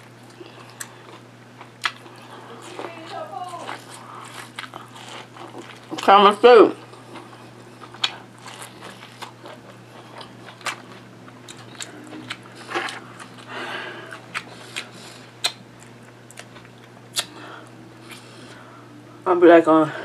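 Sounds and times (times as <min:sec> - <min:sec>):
steady low hum: 0:00.0 - 0:20.0
chewing clicks and wet smacks: 0:00.2 - 0:02.8, 0:03.7 - 0:06.2, 0:06.8 - 0:13.5, 0:14.1 - 0:18.2.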